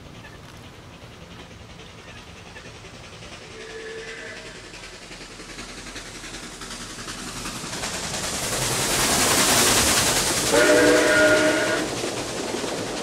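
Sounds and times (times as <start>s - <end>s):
train running through a tunnel: 0.0s - 13.0s
train horn chord: 3.6s - 4.6s, 10.5s - 11.9s.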